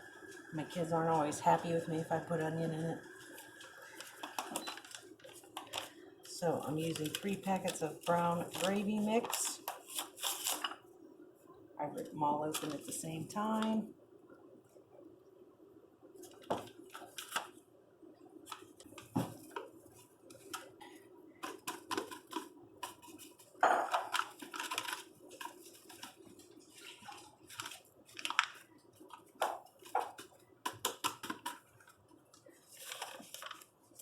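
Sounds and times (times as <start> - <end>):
paper packets rustling and tearing: 2.3 - 10.8, 24.1 - 30.3, 31.0 - 34.0.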